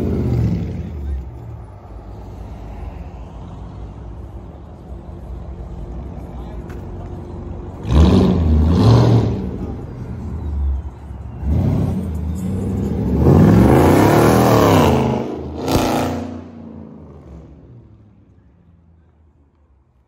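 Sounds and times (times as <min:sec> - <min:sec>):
car engine revving: 0:00.0 - 0:01.2, 0:07.7 - 0:10.1, 0:11.4 - 0:17.6.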